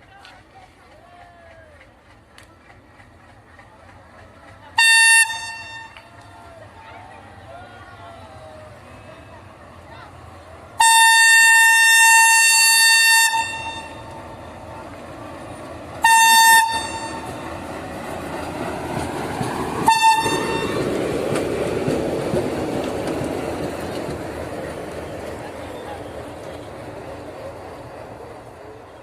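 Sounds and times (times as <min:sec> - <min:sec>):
train rumble: 0:00.0 - 0:29.0
locomotive horn blasts: 0:04.8 - 0:06.2, 0:10.8 - 0:14.2, 0:16.0 - 0:17.4, 0:19.8 - 0:20.9.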